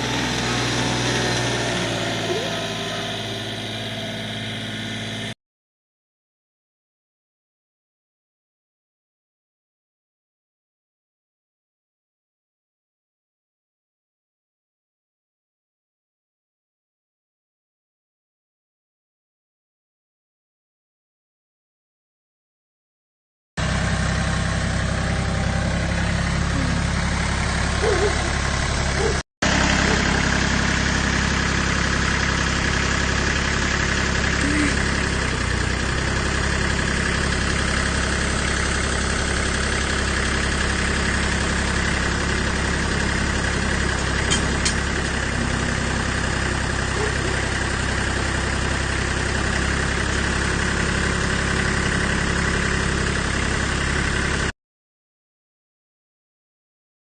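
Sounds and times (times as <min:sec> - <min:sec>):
tractor engine idling: 0:00.0 - 0:05.4, 0:23.6 - 0:54.5.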